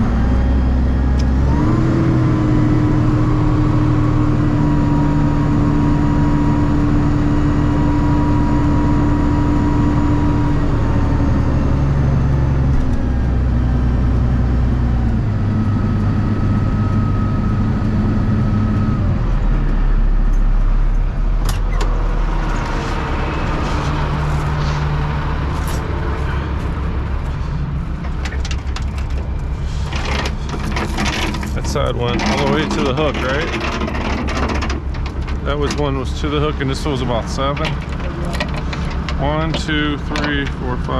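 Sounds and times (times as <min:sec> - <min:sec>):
vehicle engine shifting pitch: 0:00.0 - 0:40.9.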